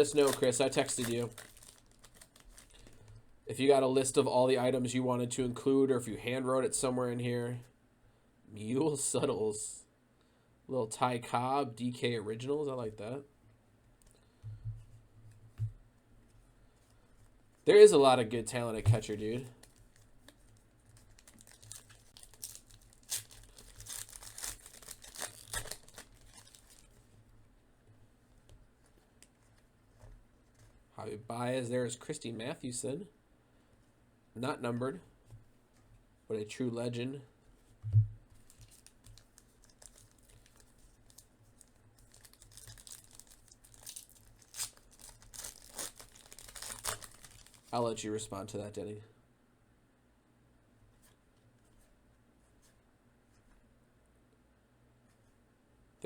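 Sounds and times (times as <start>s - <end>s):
card pack wrapper crinkling: 0.0s - 3.2s, 18.5s - 27.0s, 38.4s - 47.7s.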